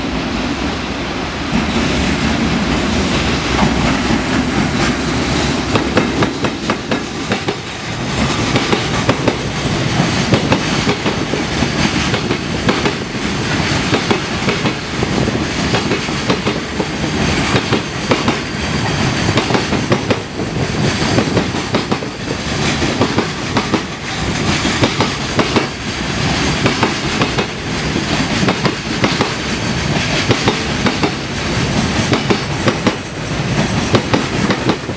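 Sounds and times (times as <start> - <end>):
freight train passing: 0.0 - 34.9.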